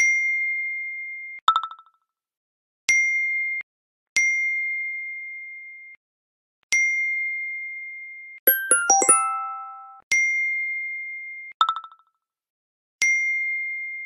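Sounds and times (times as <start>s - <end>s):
bell-like ding: 8.5s - 10.0s.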